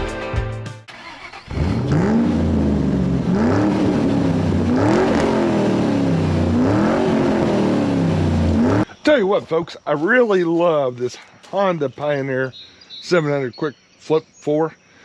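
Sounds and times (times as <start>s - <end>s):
vehicle engine revving: 1.0s - 8.9s.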